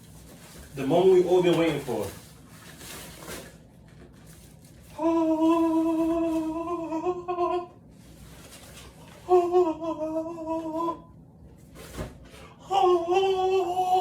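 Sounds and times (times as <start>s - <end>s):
man singing long note: 5.0s - 7.8s, 9.3s - 11.1s, 12.7s - 14.0s.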